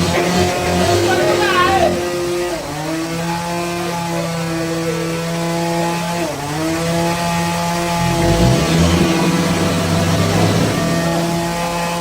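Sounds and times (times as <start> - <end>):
bandsaw sawmill motor running: 0.0 - 12.0.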